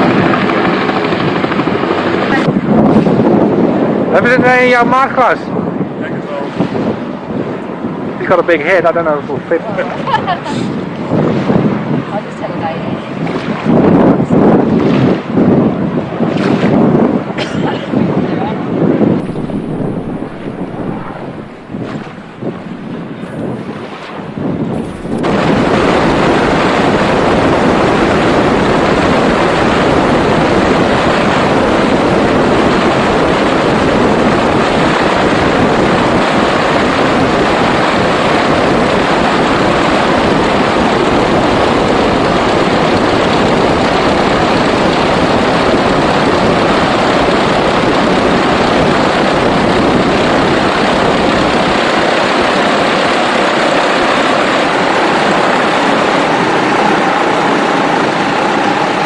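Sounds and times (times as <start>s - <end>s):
propeller plane engine running: 19.2s - 37.6s
rush of prop wash: 19.2s - 59.0s.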